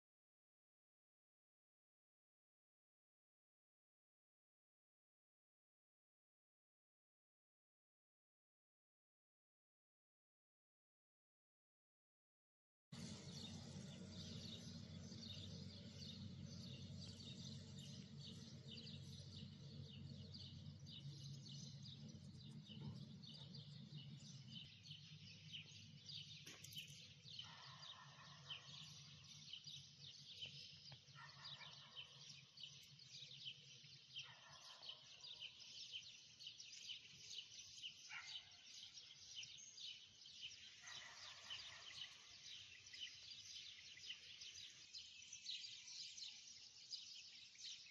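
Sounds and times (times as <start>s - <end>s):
small birds chirping: 13.0s - 47.9s.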